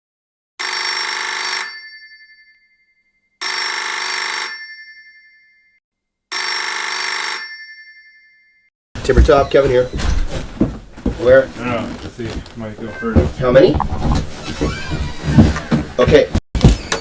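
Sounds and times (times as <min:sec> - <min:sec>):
telephone ringing: 0:00.6 - 0:02.3, 0:03.4 - 0:05.5, 0:06.3 - 0:08.5.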